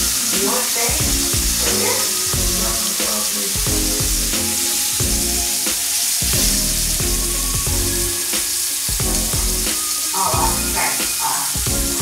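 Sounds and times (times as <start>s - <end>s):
background music with beat: 0.0s - 12.0s
steak sizzling in oil: 0.0s - 12.0s.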